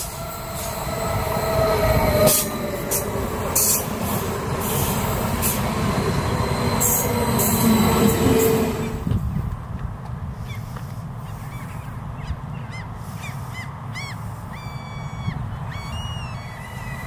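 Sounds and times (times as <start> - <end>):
bird calling: 11.3 - 17.0.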